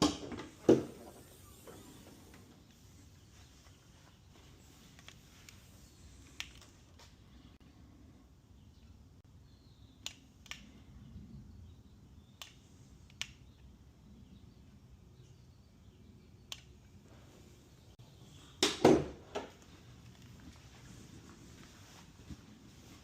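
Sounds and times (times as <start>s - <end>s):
sharp single clicks: 10.0s - 10.9s, 12.2s - 13.7s, 16.4s - 16.9s.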